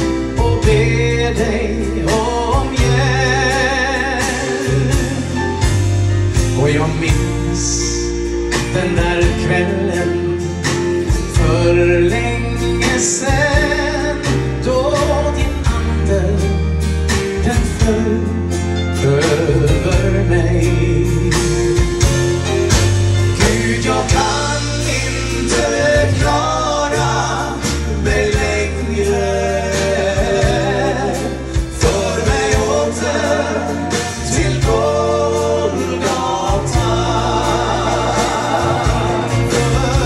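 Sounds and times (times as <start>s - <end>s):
gospel band playing: 0.0s - 40.0s
person singing: 23.3s - 40.0s.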